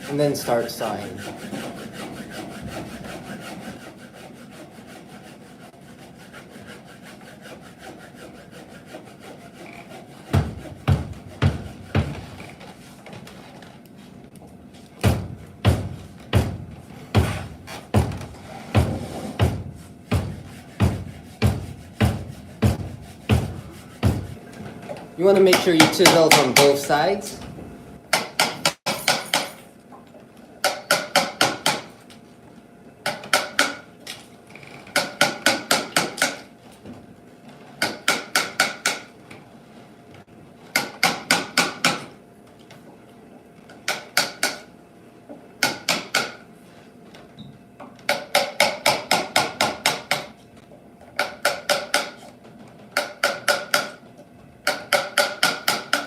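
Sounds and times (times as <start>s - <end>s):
hammer striking chisel into wood: 10.3s - 12.2s, 25.4s - 26.8s, 28.1s - 29.6s, 30.6s - 32.0s, 33.0s - 33.8s, 34.9s - 36.5s, 37.8s - 39.1s, 40.7s - 42.2s, 43.9s - 44.7s, 45.6s - 46.4s, 48.1s - 50.4s, 51.2s - 52.2s, 53.0s - 54.0s, 54.6s - 56.0s.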